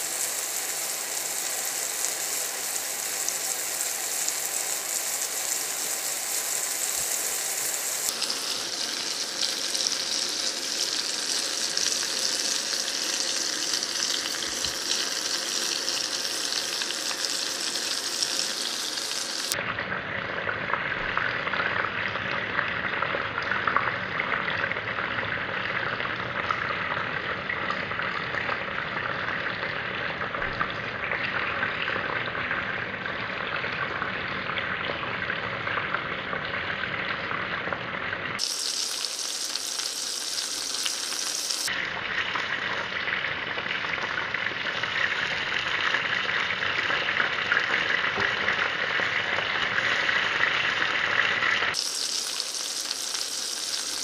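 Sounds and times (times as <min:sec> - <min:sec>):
meatballs sizzling: 0:00.0 - 0:19.6, 0:38.4 - 0:41.7, 0:42.3 - 0:54.0.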